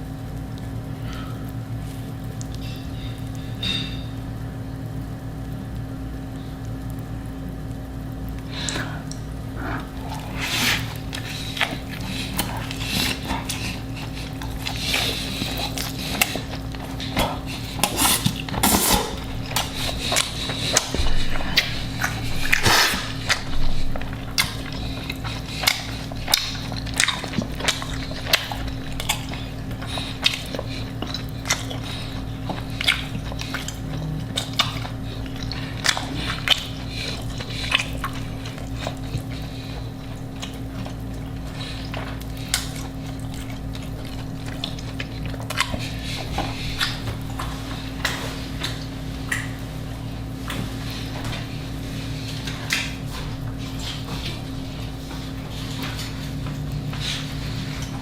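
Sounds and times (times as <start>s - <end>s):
crunching and chewing: 0.0s - 58.0s
low electrical hum: 0.0s - 58.0s.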